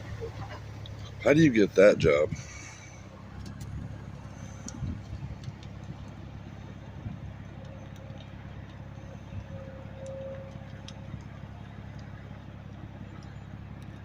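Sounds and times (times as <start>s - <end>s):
vehicle engine idling: 0.0s - 14.0s
faint ticks: 3.4s - 6.2s, 7.4s - 14.0s.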